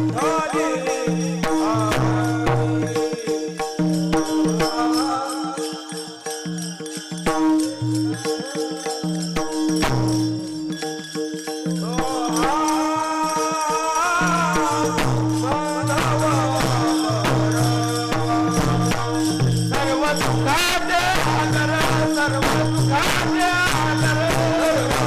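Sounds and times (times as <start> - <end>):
person singing: 0.0 - 3.6, 11.8 - 25.0
drum beats: 0.0 - 5.3, 7.2 - 25.0
jingling percussion: 0.0 - 25.0.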